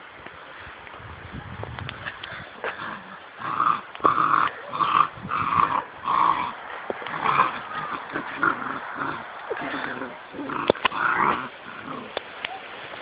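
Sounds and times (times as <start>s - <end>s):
puppies growling: 2.7s - 12.2s.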